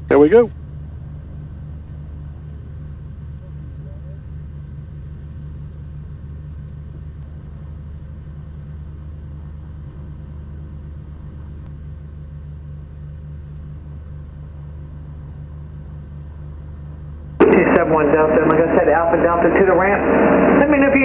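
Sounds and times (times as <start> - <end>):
piston aircraft engines droning: 17.4 - 21.0.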